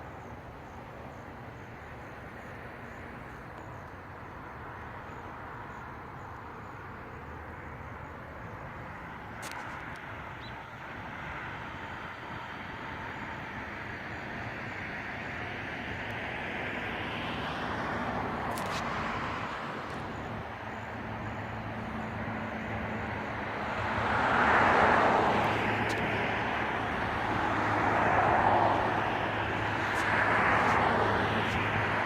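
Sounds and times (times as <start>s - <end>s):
traffic passing: 0.0s - 32.0s.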